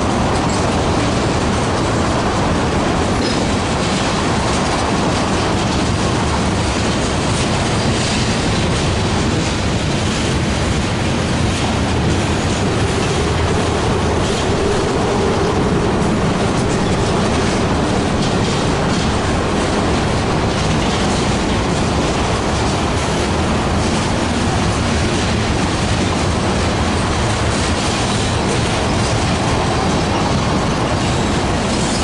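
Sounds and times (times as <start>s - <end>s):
train wheels rumbling on rail: 0.0s - 32.0s
wheels clicking over rail joints: 0.0s - 32.0s.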